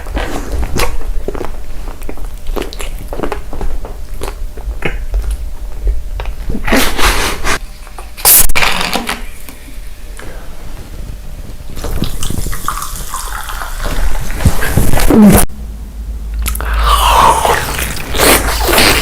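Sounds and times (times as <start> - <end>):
crunchy chewing: 0.0 - 6.5.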